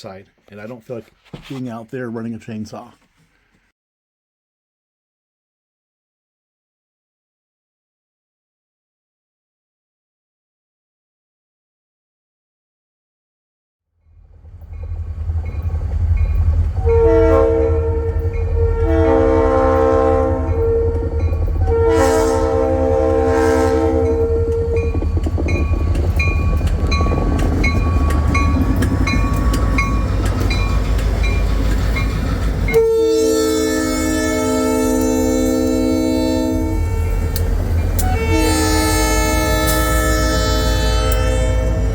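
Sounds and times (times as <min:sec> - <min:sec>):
running train rumble: 0:14.1 - 0:41.9
model train chime whistle: 0:16.8 - 0:24.9, 0:32.7 - 0:41.9.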